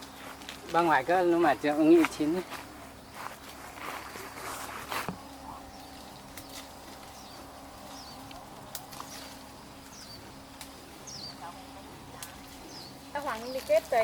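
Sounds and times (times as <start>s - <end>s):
faint steady hum: 0.0s - 14.0s
bird chirps: 5.2s - 11.7s, 12.5s - 13.9s.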